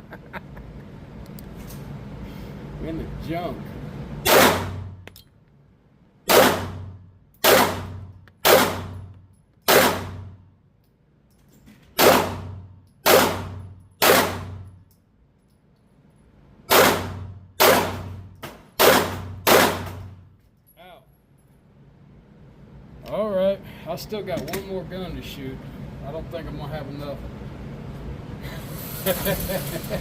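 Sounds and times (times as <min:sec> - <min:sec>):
pistol shots ringing indoors: 0:04.2 - 0:05.0, 0:06.2 - 0:10.5, 0:12.0 - 0:14.9, 0:16.6 - 0:20.3.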